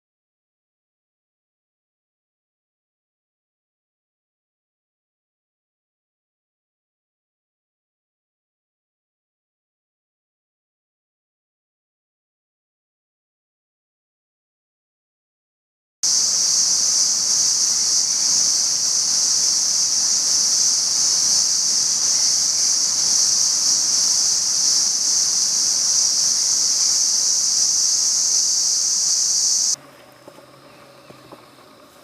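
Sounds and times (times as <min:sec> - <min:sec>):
high-pitched hiss: 0:16.0 - 0:32.0.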